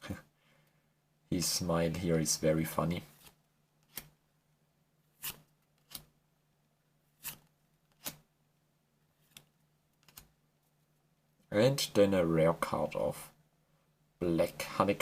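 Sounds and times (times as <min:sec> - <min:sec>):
cards snapping: 0:07.2 - 0:08.2, 0:09.2 - 0:10.3.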